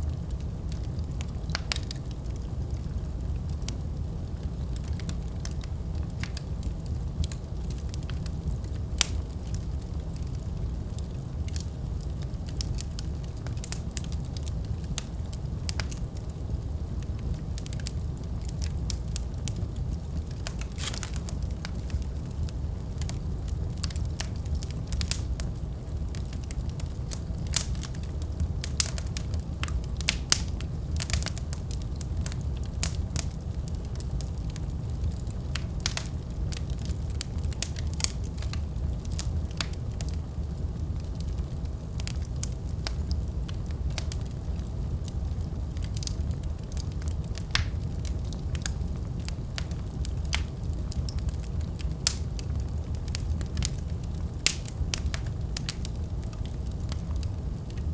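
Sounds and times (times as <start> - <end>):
fire crackling: 0.0 - 57.9
sharp pops and snaps: 17.8 - 23.2, 47.4 - 47.8, 53.1 - 56.6.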